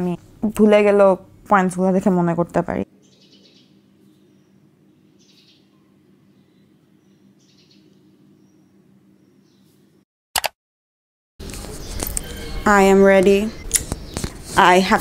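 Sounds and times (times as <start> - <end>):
faint birds chirping: 2.8 - 10.0, 11.5 - 15.0.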